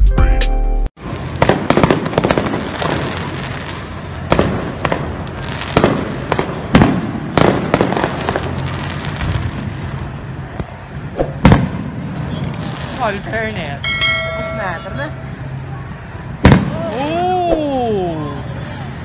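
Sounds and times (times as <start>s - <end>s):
fireworks exploding: 1.0s - 17.2s
fireworks crackling: 1.0s - 19.0s.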